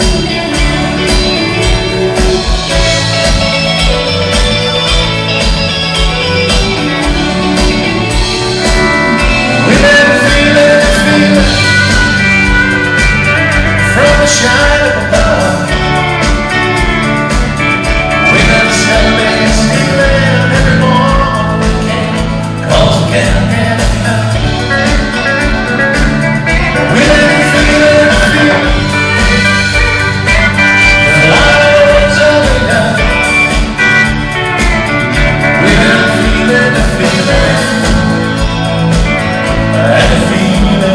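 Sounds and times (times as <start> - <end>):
country rock band playing: 0.0 - 40.9
person singing: 0.0 - 40.9.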